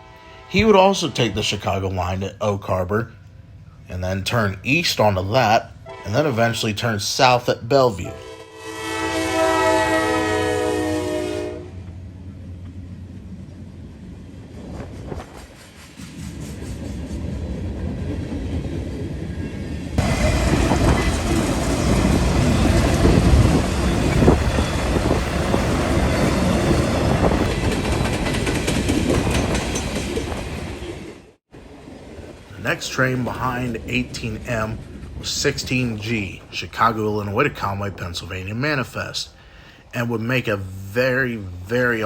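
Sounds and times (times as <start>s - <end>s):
train horn: 0.0s - 1.6s, 5.8s - 6.6s, 8.0s - 11.9s
train rumbling: 0.0s - 42.0s
wheels clattering on rails: 14.5s - 35.3s.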